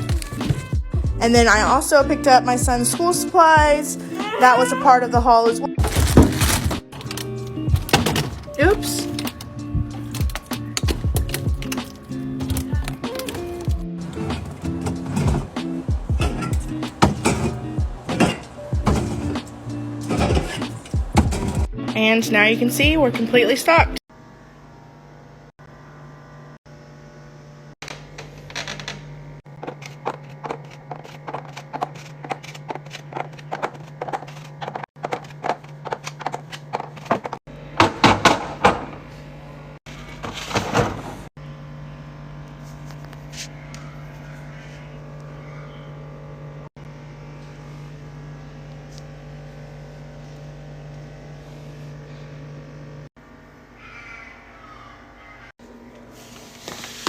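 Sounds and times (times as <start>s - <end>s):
groceries clicking and knocking: 0.0s - 0.8s, 5.8s - 21.7s, 27.8s - 39.0s
refrigerator low hum: 0.0s - 57.0s
containers clattering: 5.8s - 21.7s.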